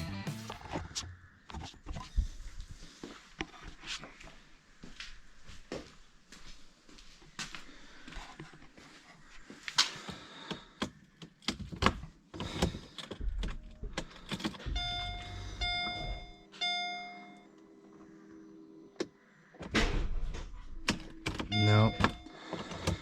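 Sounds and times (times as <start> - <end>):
electronic warning beeps: 14.6 - 17.5, 21.4 - 22.5
steady hum: 14.6 - 23.0.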